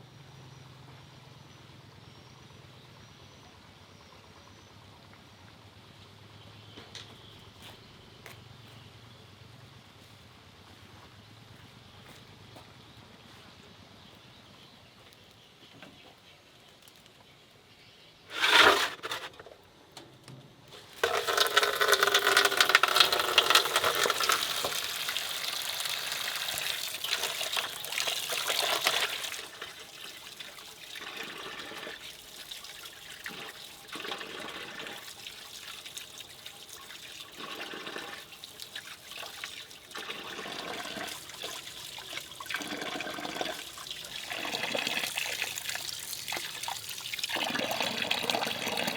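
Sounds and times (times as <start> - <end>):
water gushing: 18.3 - 19.3, 20.8 - 48.9.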